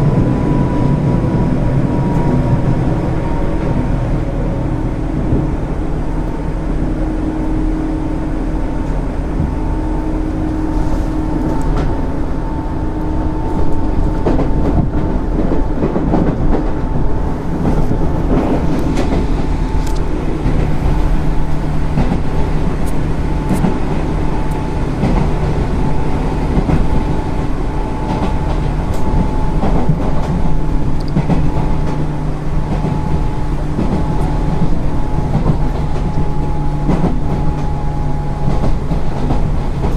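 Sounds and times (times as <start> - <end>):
traction motor hum: 0.0 - 39.8
train rumble: 0.0 - 39.9
wheels clicking over rail joints: 13.0 - 37.8, 38.4 - 39.9.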